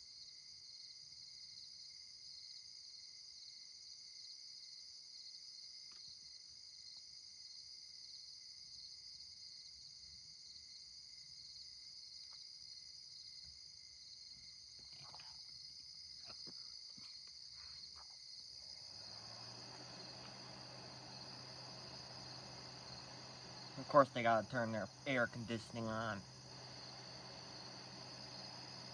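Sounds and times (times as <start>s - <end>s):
crickets trilling: 0.0s - 28.9s
air conditioner hum and fan: 18.6s - 28.9s.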